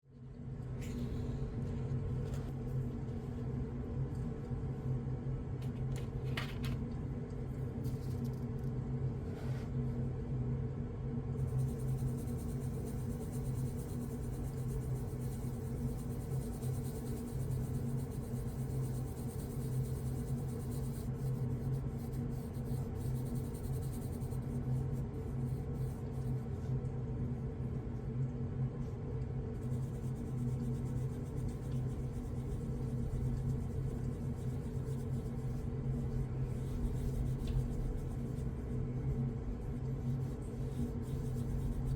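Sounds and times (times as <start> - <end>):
steady low hum: 0.0 - 41.9
coloured pencils scratching on paper: 11.4 - 26.8, 29.6 - 41.9.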